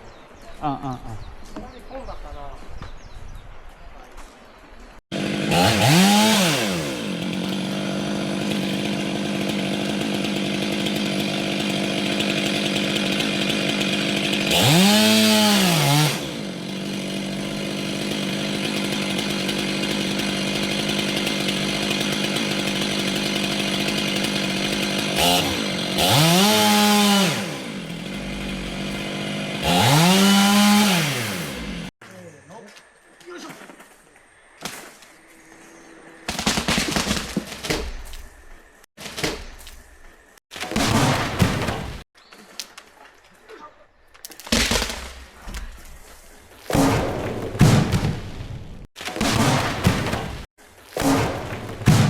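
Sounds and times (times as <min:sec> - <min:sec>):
chainsaw engine revving: 0:05.1 - 0:32.0.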